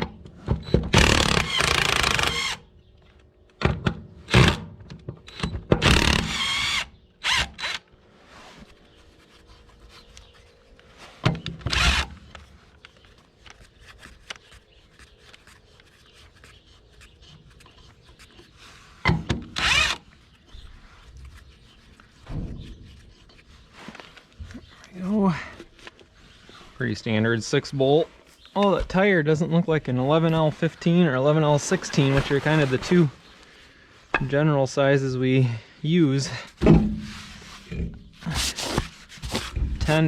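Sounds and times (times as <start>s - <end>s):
impact wrench bursts: 0.7s - 2.6s, 5.3s - 7.8s, 19.5s - 20.0s.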